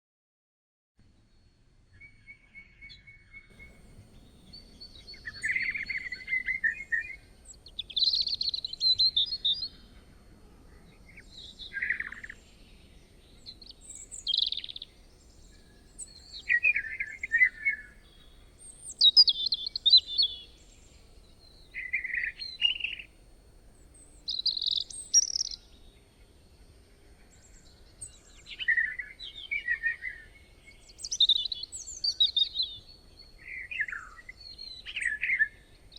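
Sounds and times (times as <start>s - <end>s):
birds chirping: 3.5s - 4.7s, 13.9s - 23.1s, 23.8s - 25.6s.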